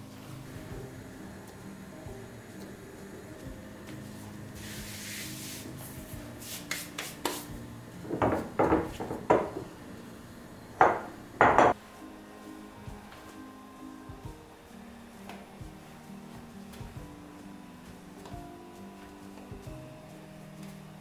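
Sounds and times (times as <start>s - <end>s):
soft hiss: 0.0s - 21.0s
sharp knocks: 8.1s - 9.8s, 10.8s - 11.8s.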